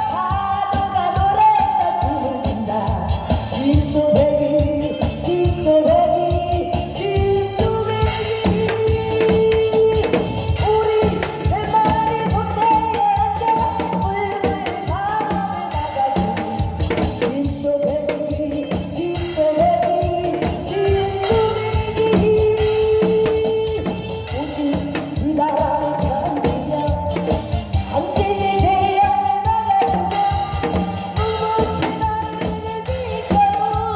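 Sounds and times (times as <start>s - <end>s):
backing band: 0.0s - 33.9s
woman singing: 0.0s - 33.9s.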